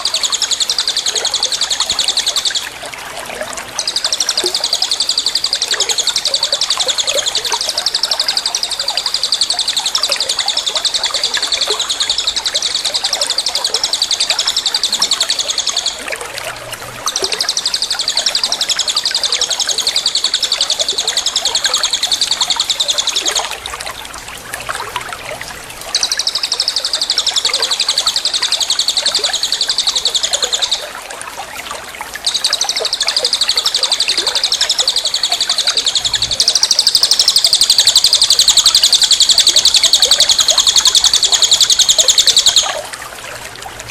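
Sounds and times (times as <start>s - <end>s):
songbird buzzing trill: 32.2s - 42.8s.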